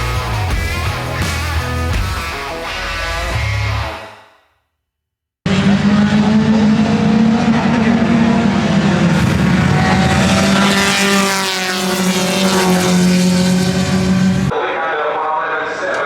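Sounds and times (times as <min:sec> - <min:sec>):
race car engine at high revs: 0:05.5 - 0:14.5.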